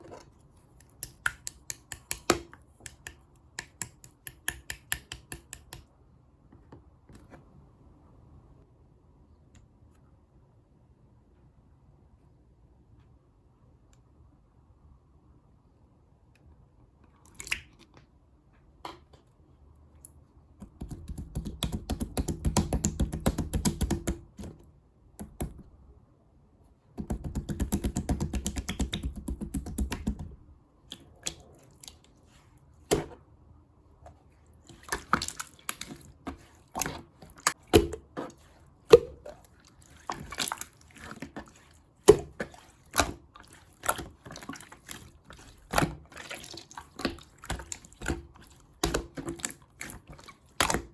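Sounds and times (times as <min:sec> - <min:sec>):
slime squished by hand: 0:34.6 - 0:50.9.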